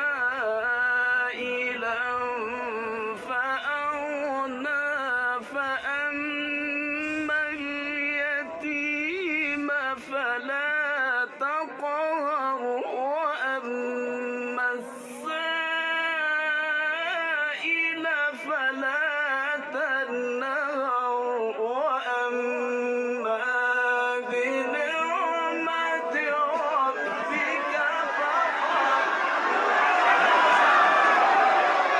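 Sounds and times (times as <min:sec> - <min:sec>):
person chanting recitation: 0:00.0 - 0:31.9
murmur of voices: 0:24.6 - 0:31.9.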